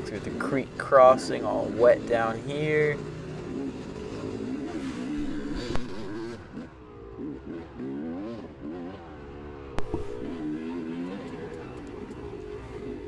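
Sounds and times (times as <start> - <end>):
dirt bike engine revving: 0.0 - 13.0
sharp knock: 9.8 - 10.4.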